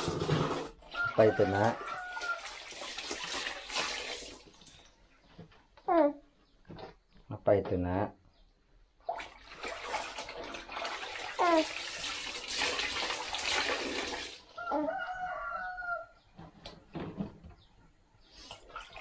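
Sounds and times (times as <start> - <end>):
water pouring and splashing: 0.0 - 5.0, 9.0 - 14.6, 18.3 - 19.0
rooster crowing: 1.0 - 2.5, 14.6 - 16.2.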